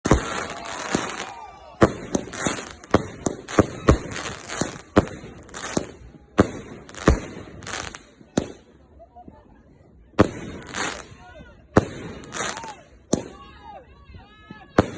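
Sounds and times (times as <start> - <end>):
fireworks crackling hiss: 0.0 - 8.6, 10.2 - 11.2, 11.8 - 12.8
fireworks bangs: 0.0 - 8.8, 10.1 - 13.4, 14.7 - 14.9.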